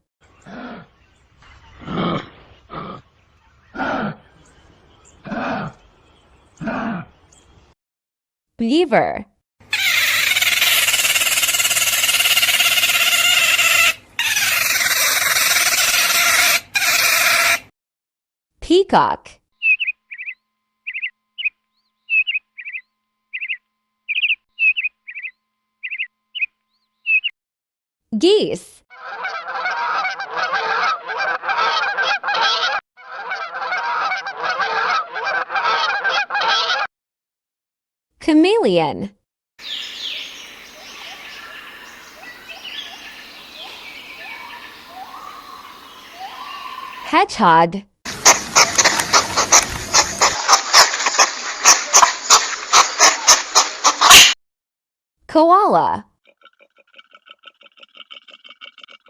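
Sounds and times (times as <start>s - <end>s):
beaver whining: 9.7s - 17.6s, 48.1s - 54.3s
geese honking: 9.7s - 17.6s, 29.0s - 36.9s, 39.6s - 47.1s, 48.1s - 54.4s.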